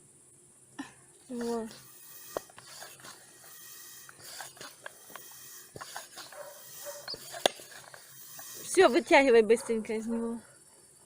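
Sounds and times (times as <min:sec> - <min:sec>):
hand air pump puffing: 0:01.3 - 0:09.3
small pump clicks: 0:01.7 - 0:08.8.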